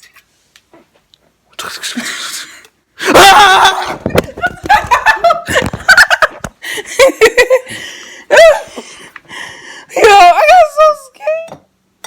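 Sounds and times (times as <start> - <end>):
loud vocal outburst: 2.0 - 4.1
laughter and snickering: 3.1 - 8.7.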